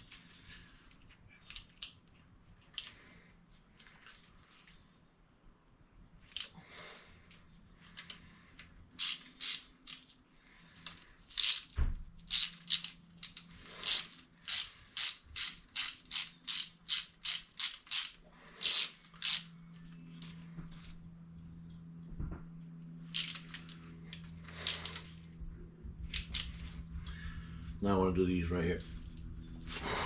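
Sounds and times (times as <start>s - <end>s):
ratchet wrench clicking: 9.0s - 10.2s, 11.3s - 19.5s, 23.1s - 23.6s, 26.1s - 26.6s.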